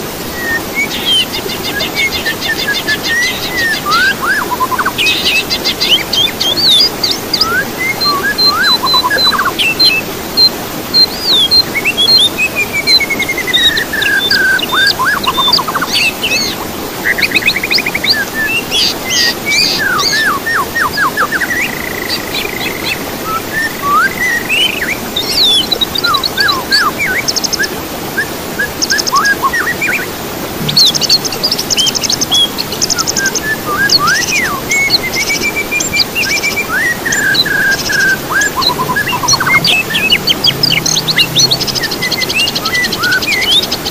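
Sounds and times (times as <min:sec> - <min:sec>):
songbird whistles and trills: 0:00.2 - 0:43.9.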